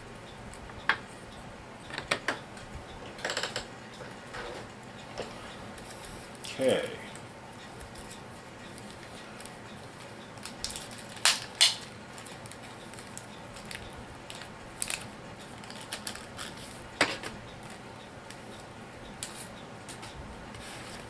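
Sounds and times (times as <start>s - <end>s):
plastic packaging rattling: 10.4s - 16.7s.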